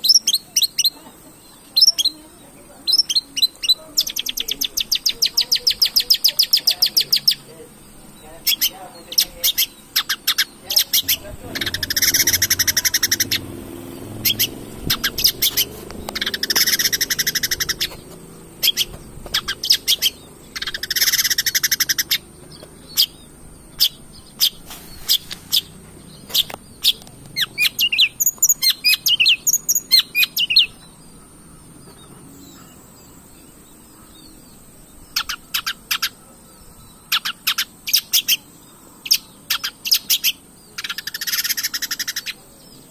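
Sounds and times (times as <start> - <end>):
harsh rapid bird trills: 0.0 - 42.9
warbling bird song: 0.0 - 42.9
bird chips: 2.8 - 30.9.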